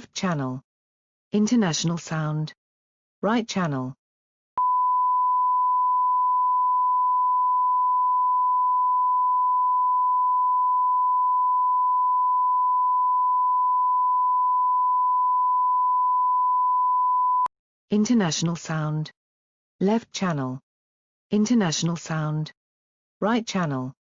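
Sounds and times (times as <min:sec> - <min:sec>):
steady pure reference tone: 0:04.6 - 0:17.5.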